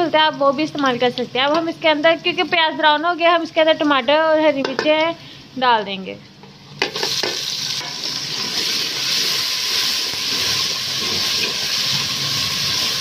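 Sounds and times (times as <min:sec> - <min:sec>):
food sizzling in hot fat: 0:06.5 - 0:13.0.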